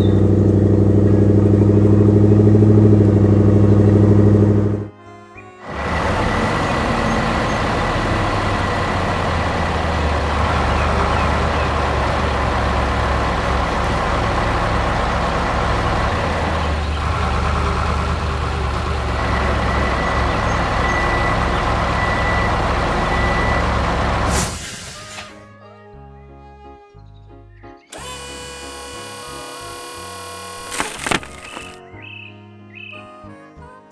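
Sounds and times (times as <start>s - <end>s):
heavy vehicle engine rumbling: 0.0s - 4.9s, 5.6s - 25.0s.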